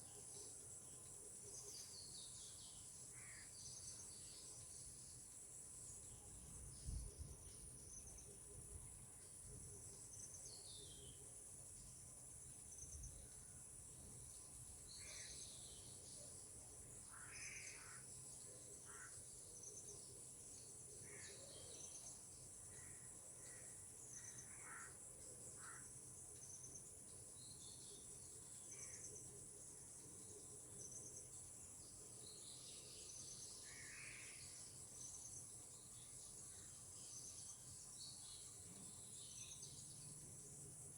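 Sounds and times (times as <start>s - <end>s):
insects trilling: 9.1s - 40.9s.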